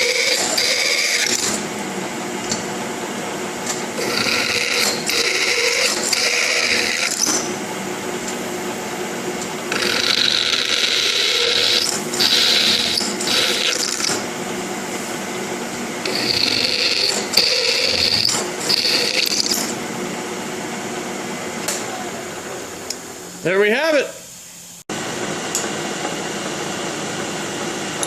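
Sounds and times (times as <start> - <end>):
drill bit cutting whine: 0.0 - 1.6, 4.0 - 7.4, 9.7 - 14.2, 16.0 - 19.7
milling machine spindle running: 0.0 - 23.4.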